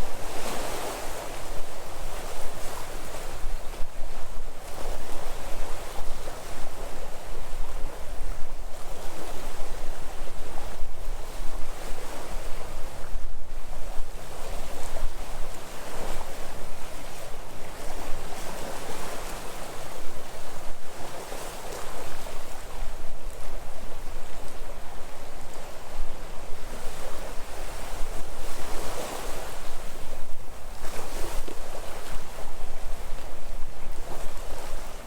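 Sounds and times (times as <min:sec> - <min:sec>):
wind rumble on microphone: 0:00.0 - 0:35.0
sea waves washing in: 0:14.2 - 0:35.0.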